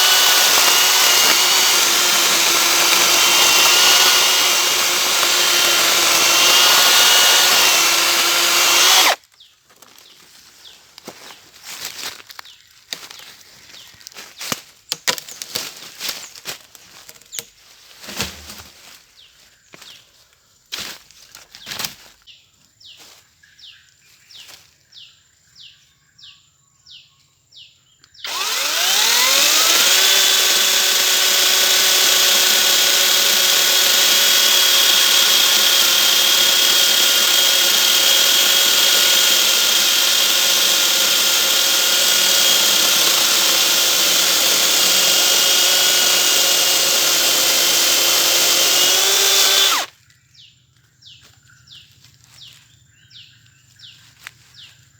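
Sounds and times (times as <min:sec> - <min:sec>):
electric chainsaw motor whine: 0:00.0 - 0:09.2, 0:28.2 - 0:49.9.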